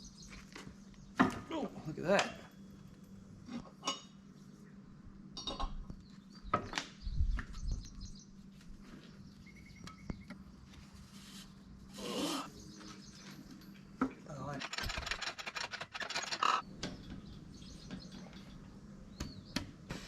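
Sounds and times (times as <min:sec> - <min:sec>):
rustling scrape: 0:10.8 - 0:12.5.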